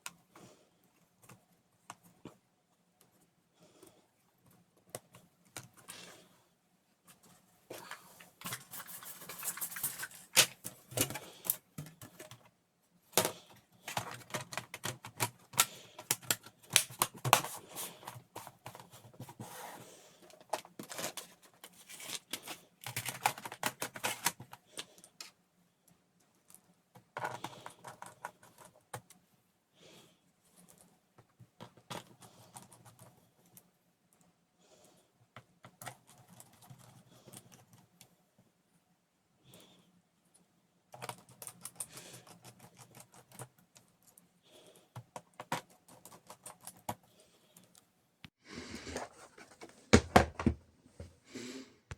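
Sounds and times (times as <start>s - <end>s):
plastic laptop parts clicking: 13.2s - 17.6s, 22.2s - 25.2s.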